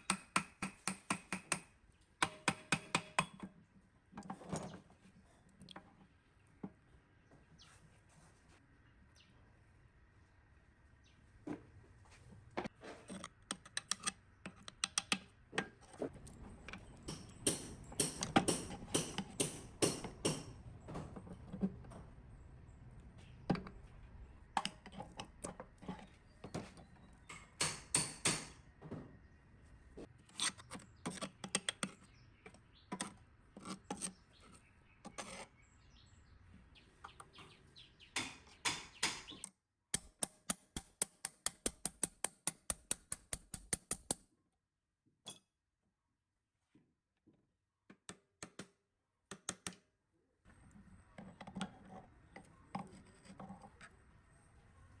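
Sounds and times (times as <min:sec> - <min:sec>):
hand tools tapping metal: 0:16.8 - 0:20.6, 0:40.0 - 0:44.2.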